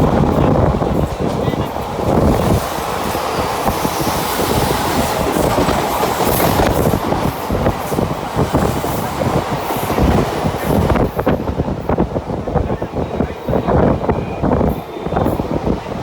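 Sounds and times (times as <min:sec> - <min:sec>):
train rumble and rush: 0:00.0 - 0:16.0.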